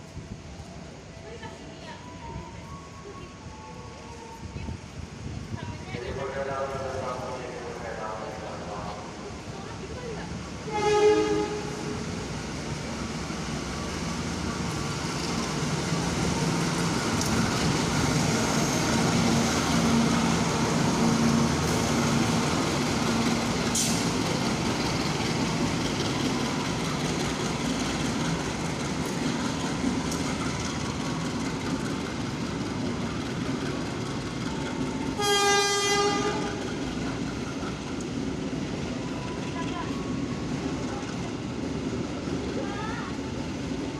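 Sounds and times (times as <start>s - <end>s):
train rumbling with rail clatter: 0.0s - 43.9s
train horn blast: 10.7s - 12.0s, 35.2s - 36.6s.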